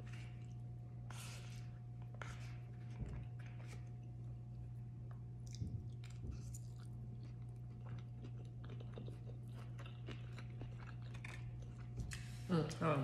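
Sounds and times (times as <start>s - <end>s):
steady low hum: 0.0s - 13.0s
close chewing with wet clicks: 5.1s - 12.3s.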